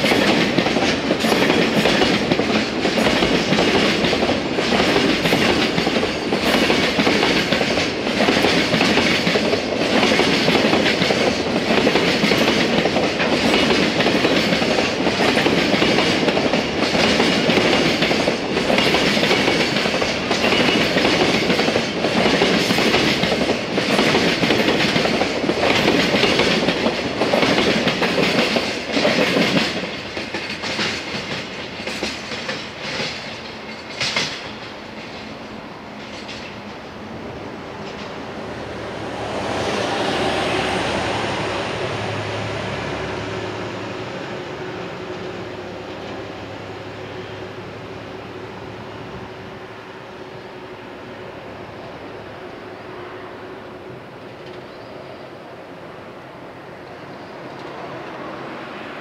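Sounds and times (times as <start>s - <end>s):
freight train wheels clacking: 0.0s - 37.0s, 37.7s - 38.4s.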